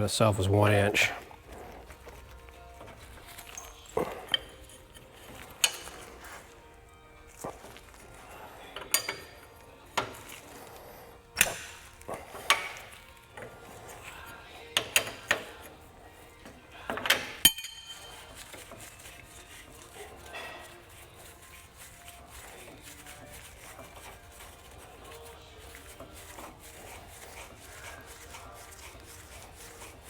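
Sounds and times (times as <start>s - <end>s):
hand tools clinking on metal: 1.8s - 6.6s, 7.3s - 10.5s, 11.4s - 30.0s
wrench working a bolt: 2.8s - 6.2s, 8.7s - 10.4s, 11.4s - 21.3s.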